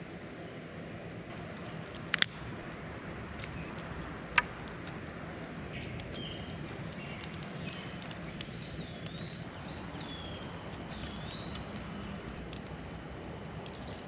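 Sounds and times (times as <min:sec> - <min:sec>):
campfire crackling: 0:00.0 - 0:14.0
steady low background noise: 0:00.0 - 0:14.0
bird whistling song: 0:03.6 - 0:14.0.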